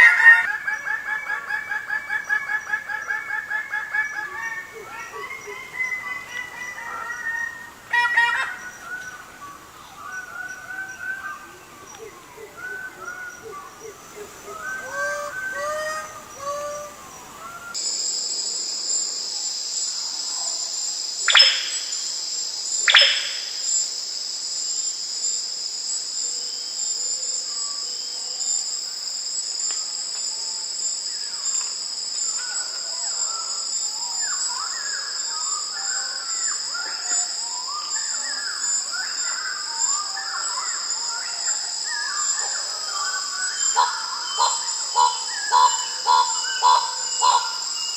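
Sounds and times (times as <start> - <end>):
high insect drone: 0.0 - 47.9
down-slurred bird whistles: 21.3 - 21.9, 22.9 - 23.4.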